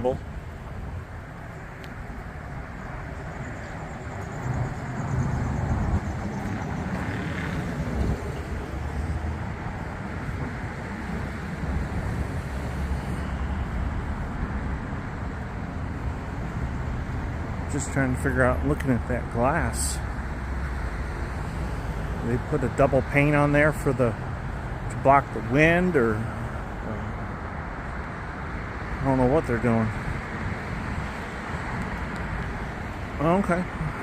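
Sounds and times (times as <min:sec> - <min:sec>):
cars passing on street: 0:00.0 - 0:34.0.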